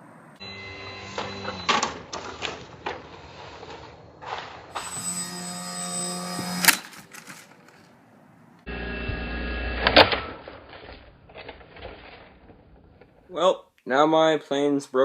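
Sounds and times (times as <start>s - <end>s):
electric model plane motor buzzing: 0.4s - 1.8s, 4.8s - 7.0s.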